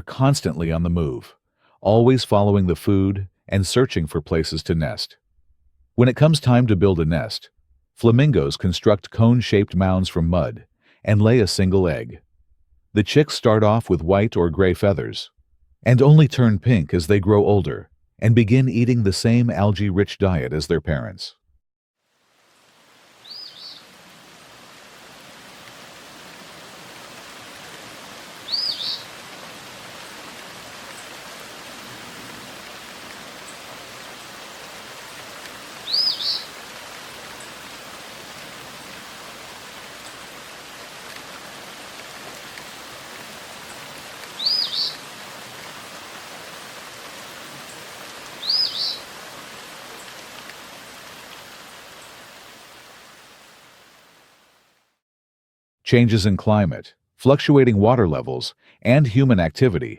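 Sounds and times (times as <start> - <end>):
steady background hiss: 22.1 - 54.9
small bird double chirp: 23.2 - 23.8, 28.5 - 29.0, 35.8 - 36.5, 44.4 - 45.0, 48.4 - 49.0.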